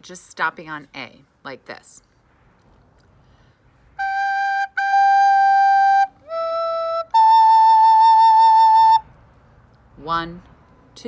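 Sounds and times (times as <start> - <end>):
soprano recorder notes: 4.0 - 9.0.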